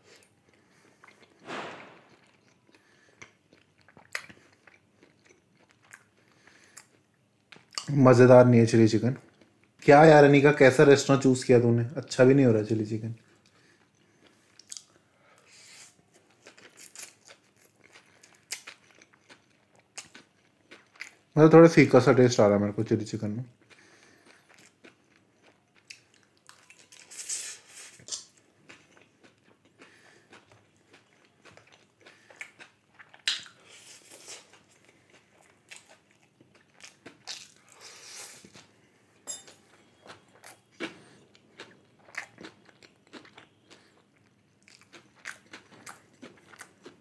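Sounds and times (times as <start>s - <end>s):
person chewing: 0.0s - 1.4s, 2.0s - 7.9s, 13.3s - 15.0s, 15.6s - 21.3s, 23.6s - 47.0s
loud bites and smacks: 1.4s - 2.5s.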